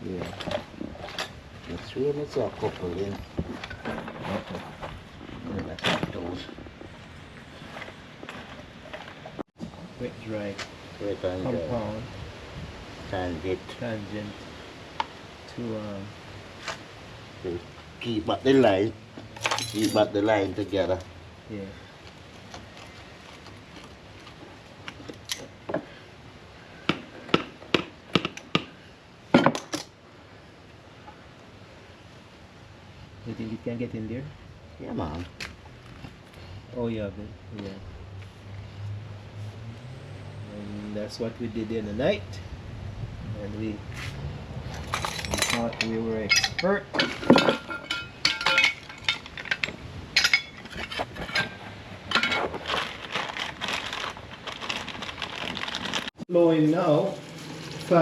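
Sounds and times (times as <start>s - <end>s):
tools tapping and knocking: 44.8s - 52.5s.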